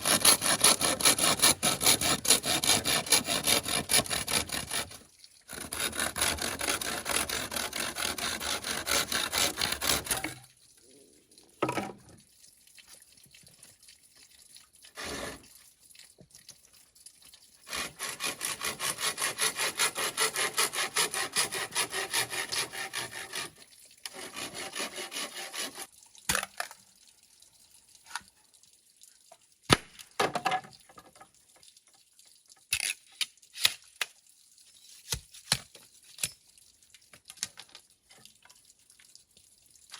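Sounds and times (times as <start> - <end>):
handsaw cutting bamboo: 0.0 - 10.4, 15.0 - 15.4, 17.7 - 25.9.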